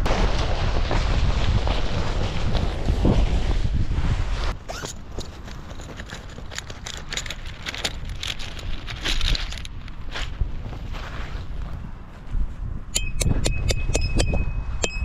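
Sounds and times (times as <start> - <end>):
tarp flapping and snapping: 0.0 - 11.5
wind rumbling on microphone: 0.0 - 15.0.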